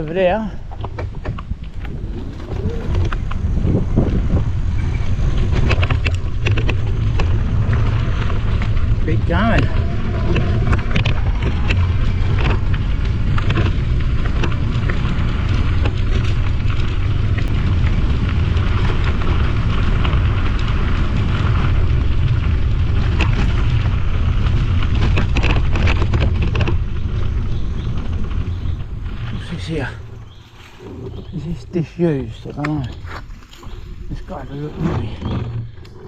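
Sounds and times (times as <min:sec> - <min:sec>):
tyres crackling on cinder track: 0:00.0 - 0:36.0
wind buffeting microphone: 0:00.0 - 0:36.0.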